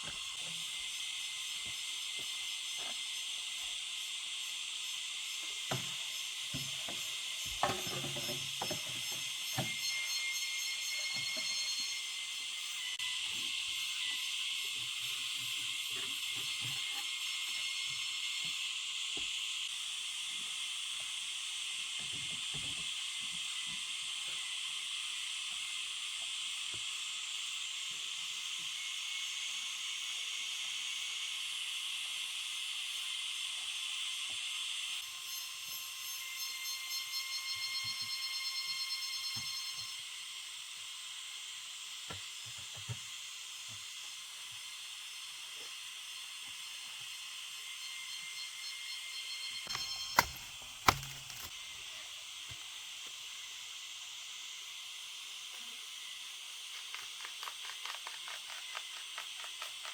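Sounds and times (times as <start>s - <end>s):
insects chorus: 0.0s - 20.4s, 34.9s - 42.0s, 43.4s - 59.9s
shrill insect trills: 0.6s - 19.0s, 34.9s - 41.4s, 44.6s - 50.6s.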